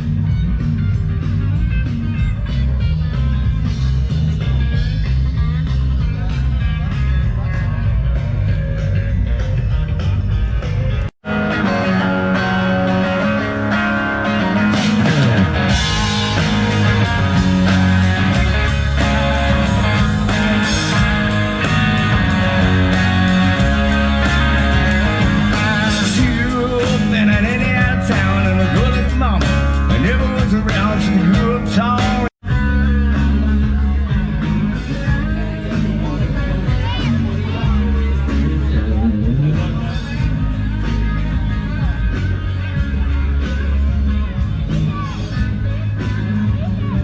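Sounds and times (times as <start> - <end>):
rock music with guitar: 0.0 - 47.0.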